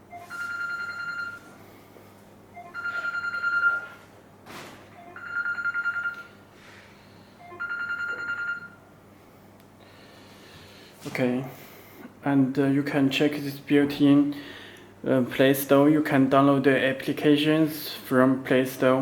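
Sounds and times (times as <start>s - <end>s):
electronic telephone ringing: 0.1s - 1.6s, 2.5s - 4.0s, 5.0s - 6.4s, 7.4s - 8.9s.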